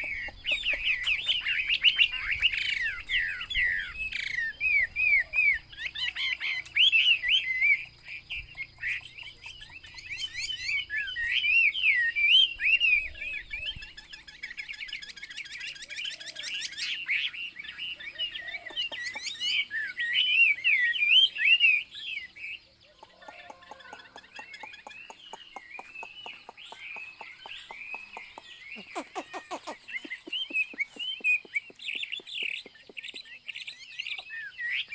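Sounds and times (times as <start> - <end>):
bird singing whistled phrases: 9.8 - 25.2, 25.8 - 34.9.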